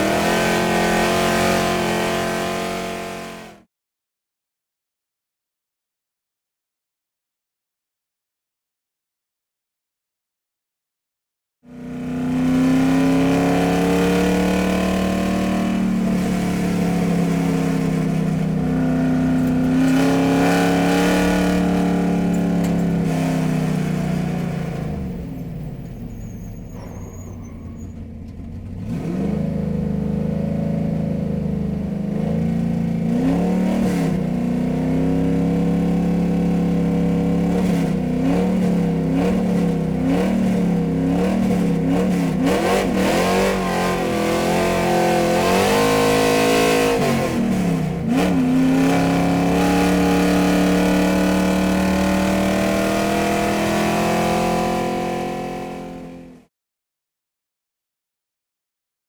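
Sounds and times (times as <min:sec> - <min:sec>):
car engine revving: 0:00.0 - 0:03.6, 0:11.7 - 0:25.9, 0:28.3 - 0:56.4.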